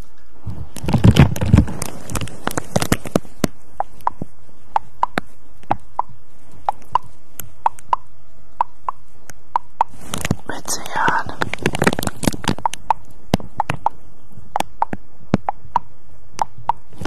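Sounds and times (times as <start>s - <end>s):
handling rustle and bumps: 0.4s - 3.6s.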